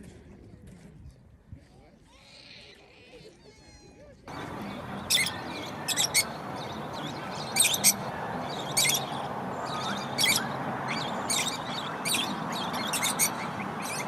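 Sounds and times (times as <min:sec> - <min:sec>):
small birds chirping: 0:04.3 - 0:14.0
steady background noise: 0:04.3 - 0:14.0.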